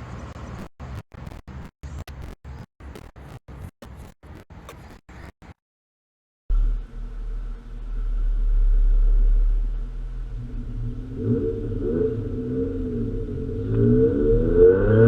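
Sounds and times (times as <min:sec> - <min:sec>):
engine revving: 0:06.5 - 0:15.0.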